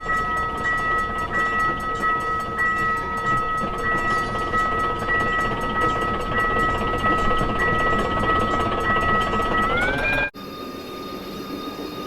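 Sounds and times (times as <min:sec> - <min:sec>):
train rumbling: 0:00.0 - 0:12.0
high-pitched tones: 0:09.6 - 0:10.4.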